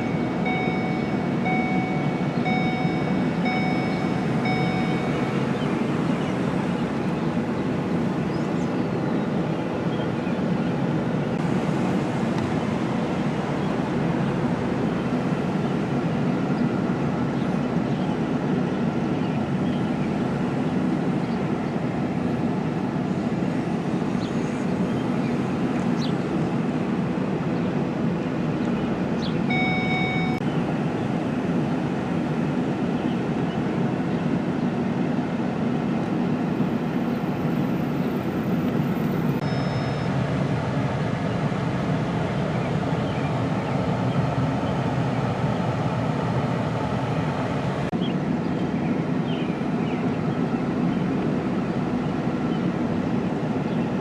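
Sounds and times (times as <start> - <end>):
short electronic beep: 0.0 - 5.5, 29.5 - 30.4, 39.1 - 40.1
vehicle running noise: 0.0 - 54.0.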